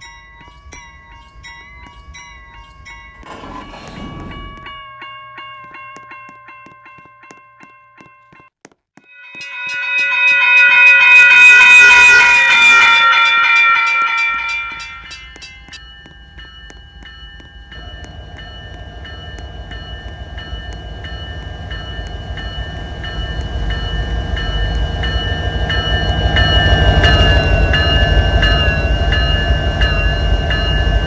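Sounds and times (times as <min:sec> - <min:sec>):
train rumbling: 0:00.0 - 0:07.6, 0:09.3 - 0:31.0
bell ringing: 0:00.0 - 0:31.0
train horn chord: 0:09.5 - 0:15.4.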